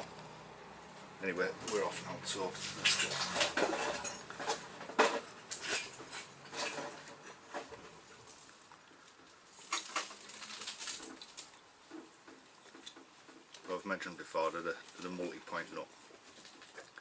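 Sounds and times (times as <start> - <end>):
metal tools clicking and clinking: 2.6 - 7.8.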